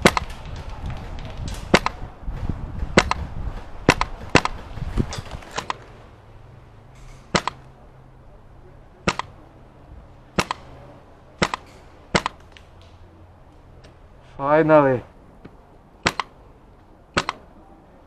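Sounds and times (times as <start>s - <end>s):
airsoft rifle shots: 0.0s - 0.7s, 1.4s - 2.1s, 2.9s - 4.8s, 7.3s - 7.6s, 9.0s - 9.4s, 10.3s - 10.7s, 11.4s - 12.5s, 16.0s - 16.4s, 17.1s - 17.5s.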